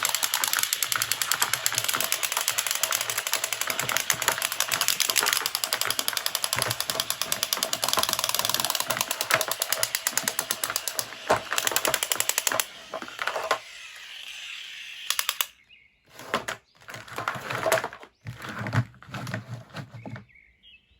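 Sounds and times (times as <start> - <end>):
rapid mechanical clicking: 0.0 - 15.6.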